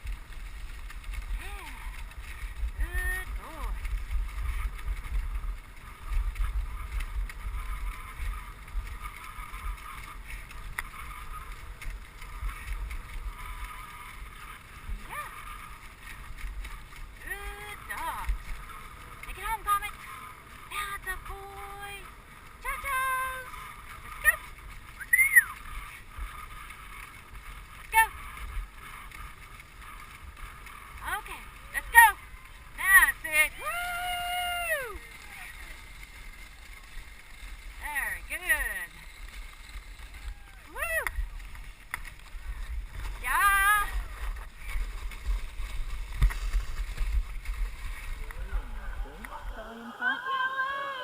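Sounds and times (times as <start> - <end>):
sled runners hissing on snow: 0.0 - 22.6, 34.6 - 51.0
wind rumble on microphone: 0.0 - 50.0
sled hissing over snow: 43.8 - 51.0.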